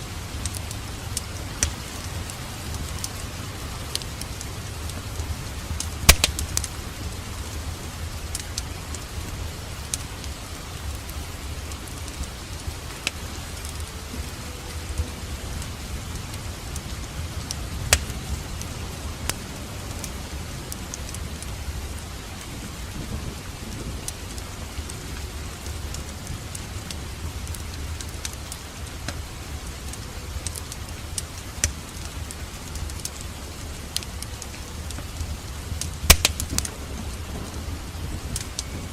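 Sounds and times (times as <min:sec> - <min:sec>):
fire low rumble: 0:00.0 - 0:38.9
wood fire crackling and popping: 0:00.0 - 0:38.9.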